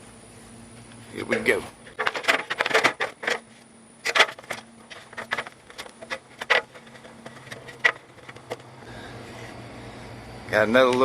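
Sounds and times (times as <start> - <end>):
boots and hands on ladder rungs: 1.9 - 8.7.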